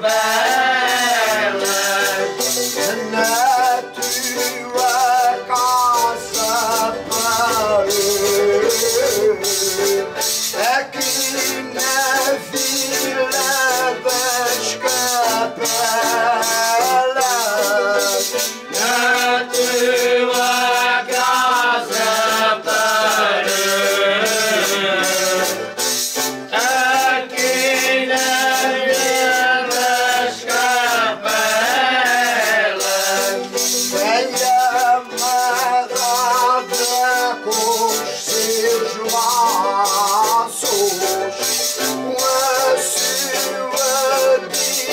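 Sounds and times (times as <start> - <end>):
jingling metal hand percussion: 0.0 - 44.9
men singing: 0.0 - 44.9.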